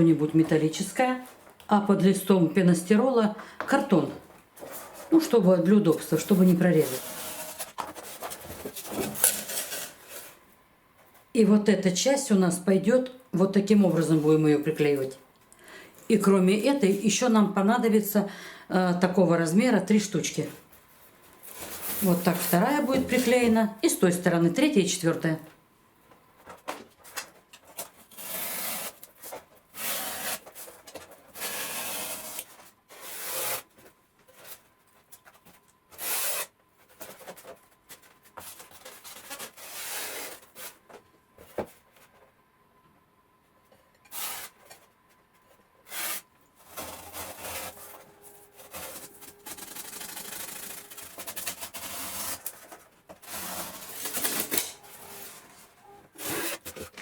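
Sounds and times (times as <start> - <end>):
knife scraping through foam: 45.9 - 48.0.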